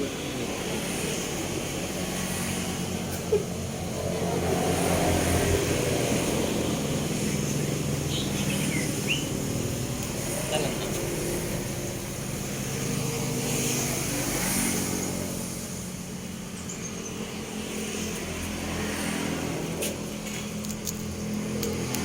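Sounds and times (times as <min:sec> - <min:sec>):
passing motor vehicle hum: 0:00.0 - 0:22.0
bird chirps: 0:07.5 - 0:09.5.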